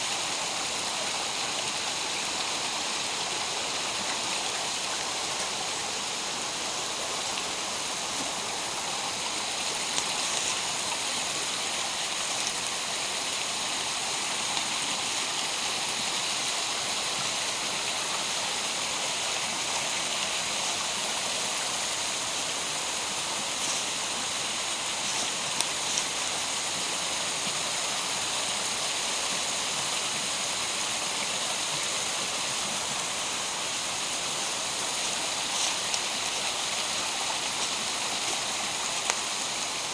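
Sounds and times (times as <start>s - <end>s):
stream rushing: 0.0s - 39.9s
faint ticks: 37.6s - 39.3s.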